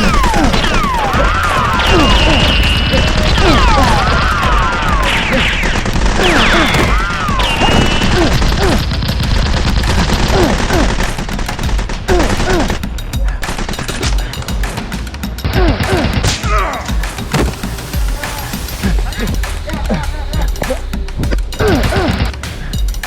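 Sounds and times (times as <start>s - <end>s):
falling whistle-like tones: 0.0s - 8.4s
rapid machine-gun fire: 0.0s - 20.5s.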